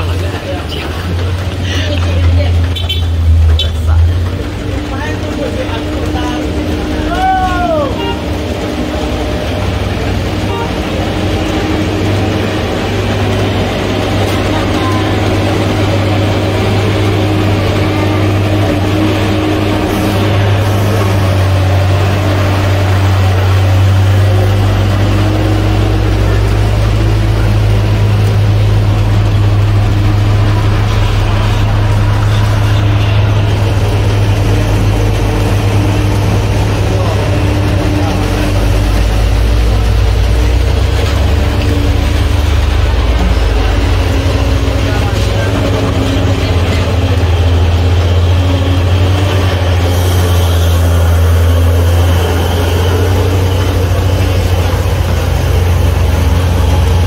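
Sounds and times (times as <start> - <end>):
vehicle engine droning: 0.0 - 57.0
hiss: 49.8 - 53.0.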